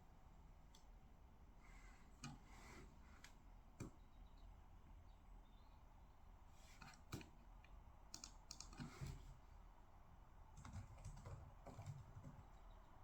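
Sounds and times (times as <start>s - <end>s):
typing on computer keyboard: 8.1s - 8.9s, 10.6s - 12.5s.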